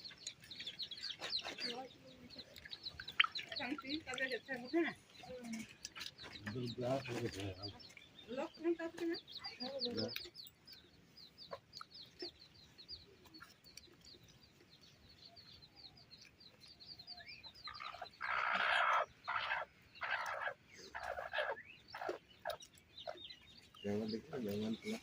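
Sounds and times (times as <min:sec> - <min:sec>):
chicks peeping: 0:00.0 - 0:25.0
chickens clucking harshly: 0:17.7 - 0:23.2.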